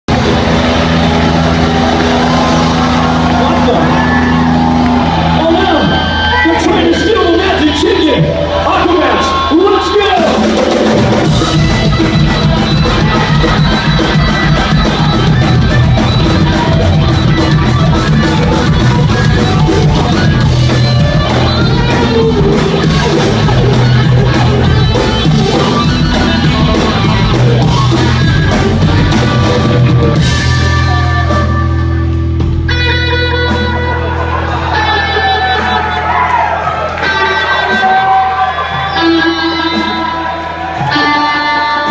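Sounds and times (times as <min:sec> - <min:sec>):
rock band playing live: 0:00.1 - 0:41.9.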